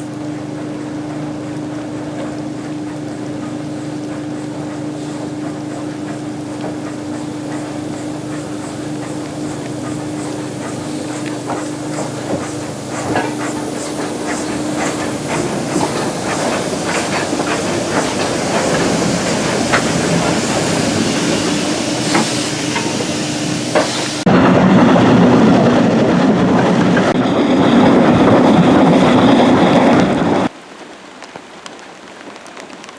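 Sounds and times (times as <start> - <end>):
wheels clicking: 0.0 - 24.3
steam hissing: 0.0 - 24.5
steam locomotive hum: 0.0 - 30.5.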